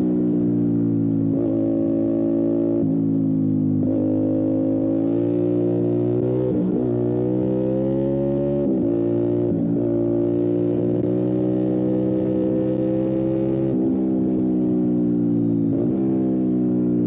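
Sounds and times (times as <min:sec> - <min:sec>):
motorcycle engine under throttle: 0:00.0 - 0:17.0.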